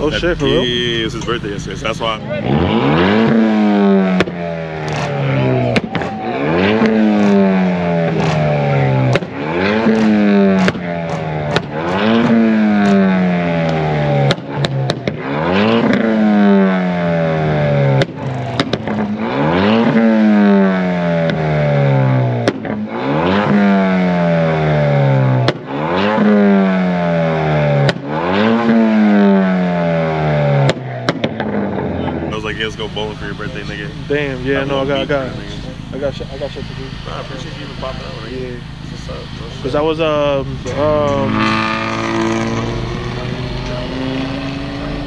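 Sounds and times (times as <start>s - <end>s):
car engine revving: 0.0s - 45.0s
exhaust pops and cracks: 6.8s - 16.1s, 17.9s - 19.2s, 22.4s - 22.9s, 25.4s - 25.7s, 27.8s - 28.1s, 30.6s - 31.9s.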